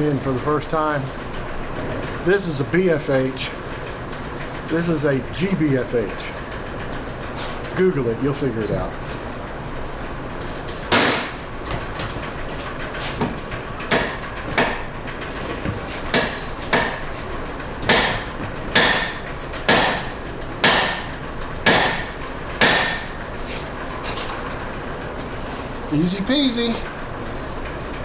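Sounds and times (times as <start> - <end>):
hammer striking metal: 17.9 - 23.1.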